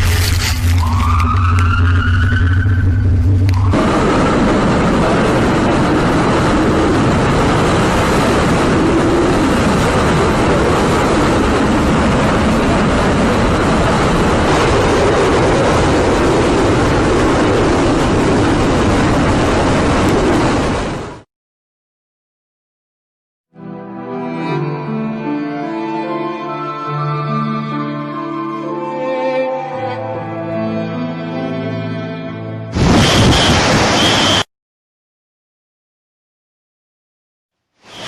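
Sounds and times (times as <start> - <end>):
driving rain: 0.0 - 21.2, 32.8 - 34.5
roaring wind: 0.0 - 21.3, 32.7 - 34.4.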